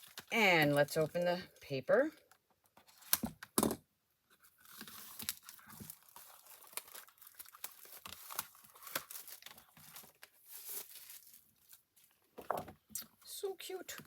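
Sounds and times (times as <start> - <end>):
paper wrapping tearing and crinkling: 0.0 - 0.3, 4.5 - 11.8.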